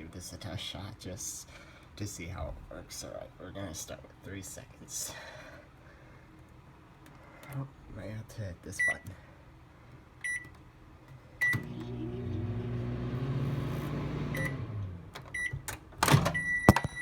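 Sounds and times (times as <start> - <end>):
microwave oven humming: 8.8 - 17.0
microwave keypad beeps: 10.2 - 10.5, 11.4 - 12.0, 14.3 - 14.6, 15.4 - 15.6, 16.3 - 17.0.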